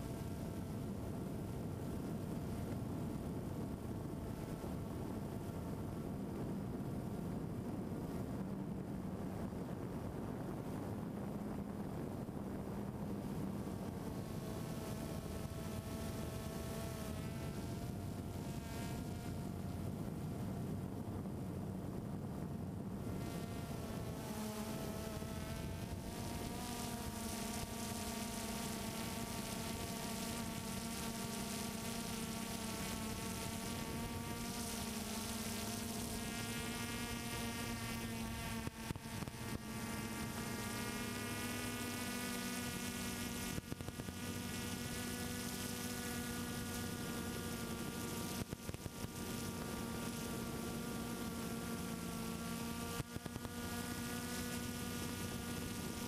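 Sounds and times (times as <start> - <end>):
drone propellers buzzing: 12.2 - 21.1, 21.9 - 56.0.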